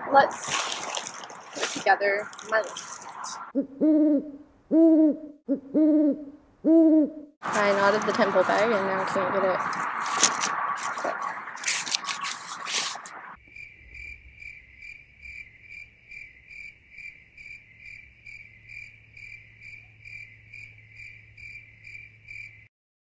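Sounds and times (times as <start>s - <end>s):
nylon fabric crinkling: 0.2s - 3.4s, 9.9s - 13.2s
crickets chirping: 13.4s - 22.7s.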